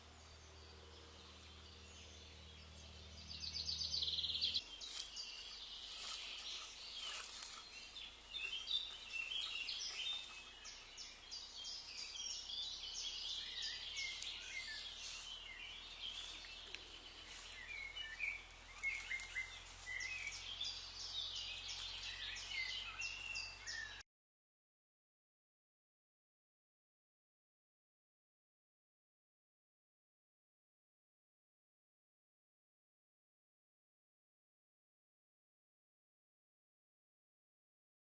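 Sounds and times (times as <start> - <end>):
small birds chirping and trilling: 0.0 - 24.0.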